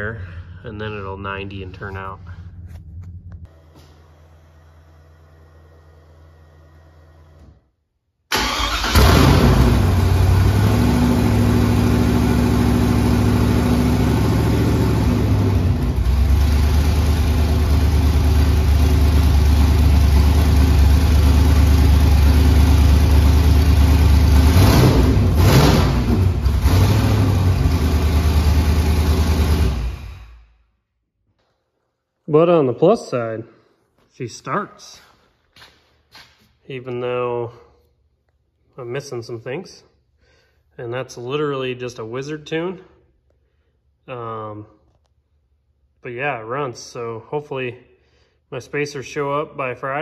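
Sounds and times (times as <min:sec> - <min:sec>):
car engine starting and idling: 0:08.3 - 0:30.6.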